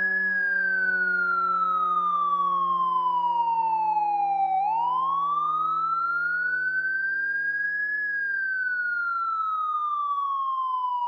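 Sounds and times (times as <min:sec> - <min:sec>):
fire engine siren wailing: 0:00.0 - 0:11.0.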